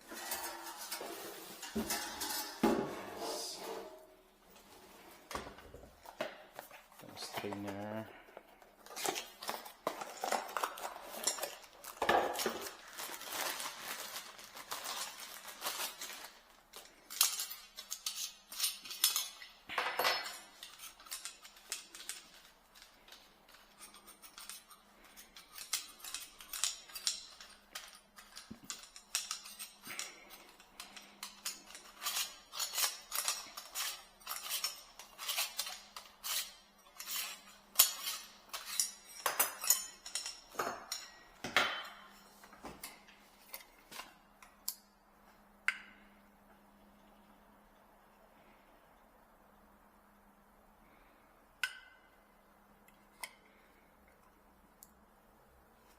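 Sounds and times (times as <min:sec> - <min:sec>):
metal parts clinking: 0:16.8 - 0:41.2.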